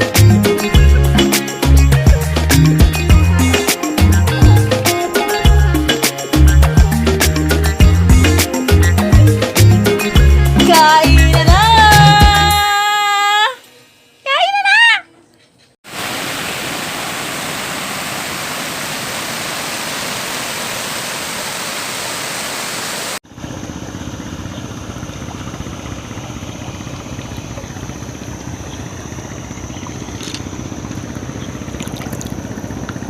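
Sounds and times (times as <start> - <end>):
river water rushing: 15.9 - 23.2
low rumble with hum: 23.3 - 33.0.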